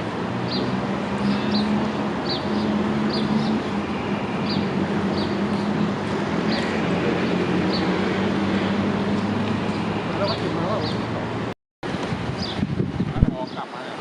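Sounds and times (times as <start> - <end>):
bird chirping: 0.5 - 5.9.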